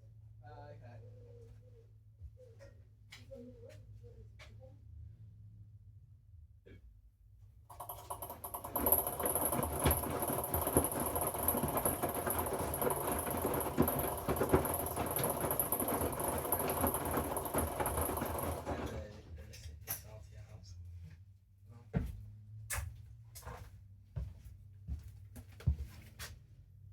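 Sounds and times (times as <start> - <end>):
laundry tumbling and knocking: 7.7 - 19.1
washing machine motor whine: 7.7 - 19.2.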